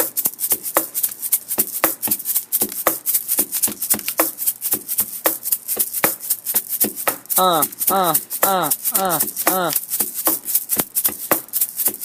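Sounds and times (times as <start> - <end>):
person beatboxing: 7.1 - 9.9.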